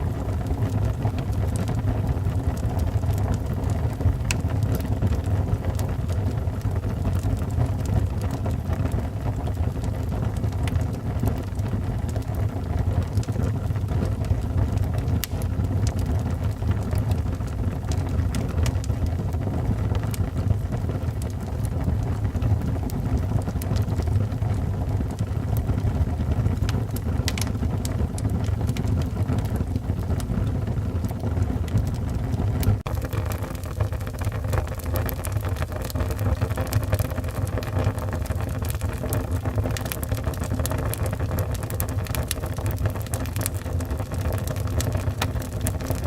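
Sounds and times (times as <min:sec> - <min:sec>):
fire rumbling: 0:00.0 - 0:46.0
wood crackling and popping: 0:00.0 - 0:46.0.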